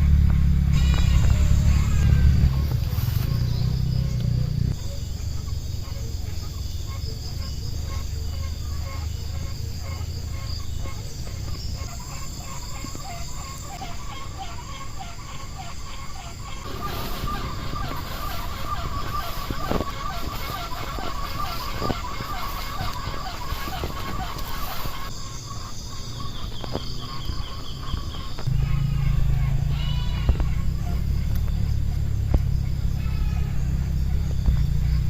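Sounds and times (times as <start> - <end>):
low hum: 0.0 - 11.8, 16.5 - 25.7, 28.0 - 35.0
outdoor animal calls: 0.0 - 35.0.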